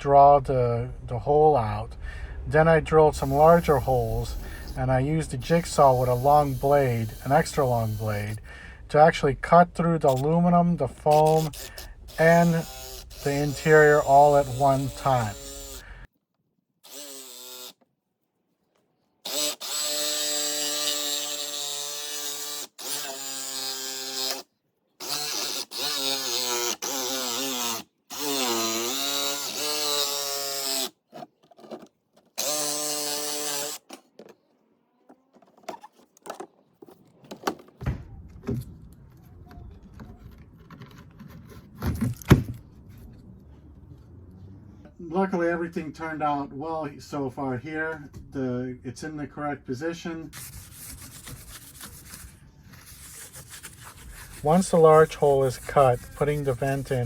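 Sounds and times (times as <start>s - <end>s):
power tool cutting metal: 3.2s - 8.4s, 11.1s - 15.9s, 16.9s - 17.8s, 19.3s - 24.4s, 25.0s - 30.9s, 32.4s - 34.0s
handling clicks and knocks: 35.1s - 38.8s.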